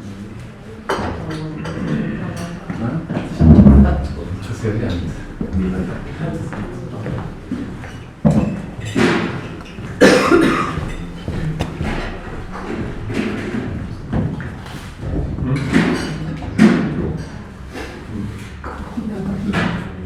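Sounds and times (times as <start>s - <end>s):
background chatter: 0.0s - 20.0s
sudden loud noises: 3.4s - 4.7s.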